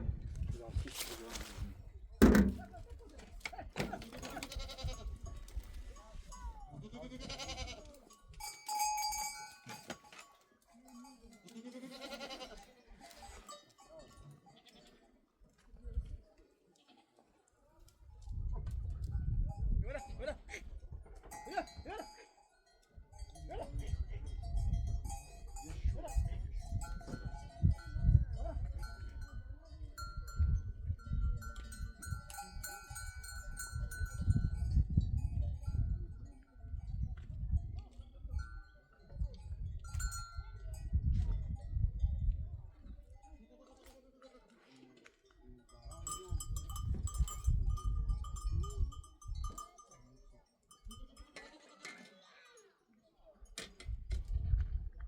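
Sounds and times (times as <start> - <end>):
livestock bells clinking: 4.1 - 15.1, 19.1 - 41.8, 45.4 - 52.0
goats or sheep bleating: 4.3 - 5.2, 6.8 - 7.9, 11.5 - 13.0.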